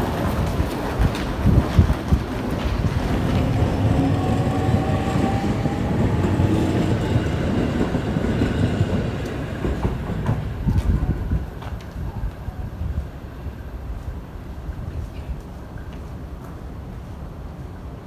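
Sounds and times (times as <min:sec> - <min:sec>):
wheels clacking over rail joints: 0:00.0 - 0:12.0
train running low rumble: 0:00.0 - 0:18.0.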